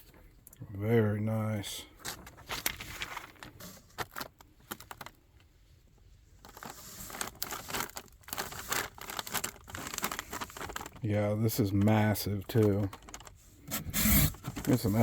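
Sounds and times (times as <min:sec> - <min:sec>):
packaging crinkling and clicking: 0:02.0 - 0:05.5, 0:06.4 - 0:11.1, 0:11.7 - 0:15.0.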